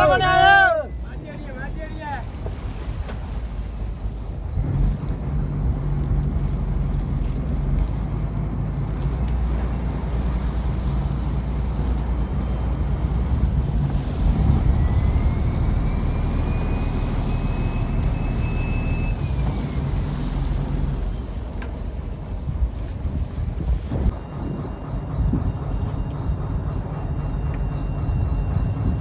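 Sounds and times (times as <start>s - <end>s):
high whine: 0.0s - 2.4s, 24.0s - 29.0s
diesel engine running: 0.0s - 23.4s, 24.1s - 29.0s.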